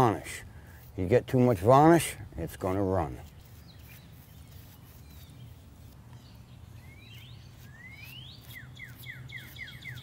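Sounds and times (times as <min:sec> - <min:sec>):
birds whistling calls: 0:04.8 - 0:10.0.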